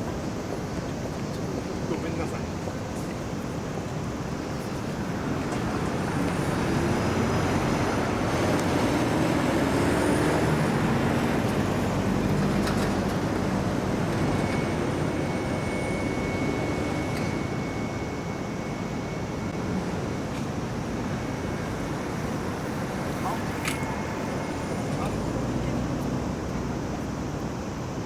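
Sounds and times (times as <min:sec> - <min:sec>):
vehicles passing: 0:04.7 - 0:17.4, 0:19.4 - 0:28.0
faint high whistle: 0:14.0 - 0:20.7.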